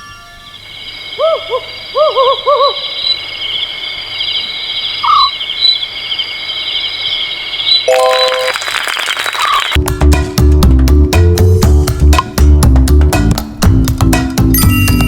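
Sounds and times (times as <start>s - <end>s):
rapid high bird chirping: 0.0s - 9.8s
short hooting calls: 1.1s - 3.7s, 4.3s - 5.9s.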